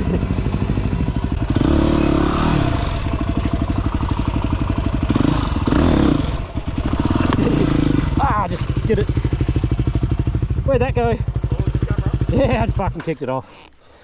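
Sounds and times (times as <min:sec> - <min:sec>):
dirt bike engine revving: 0:00.6 - 0:10.6.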